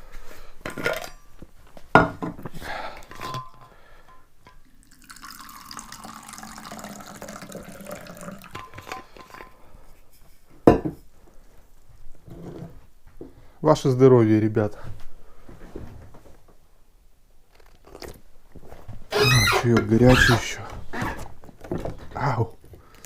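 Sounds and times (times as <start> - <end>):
tea pouring into a cup: 4.6 - 9.0
crockery knocking: 10.7 - 11.0.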